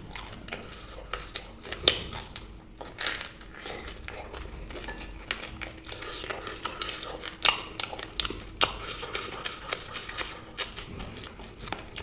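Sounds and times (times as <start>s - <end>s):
person eating crunchily: 0.0s - 12.0s
wet mouth clicks: 5.8s - 12.0s.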